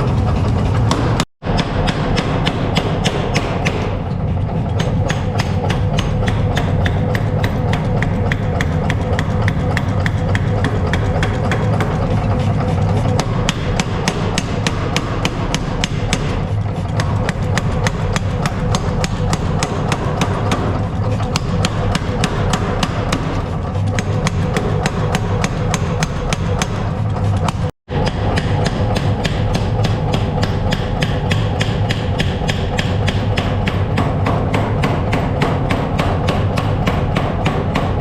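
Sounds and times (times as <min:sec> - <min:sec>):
steady low hum: 0:00.0 - 0:38.0
hammer striking steel on anvil: 0:00.7 - 0:38.0.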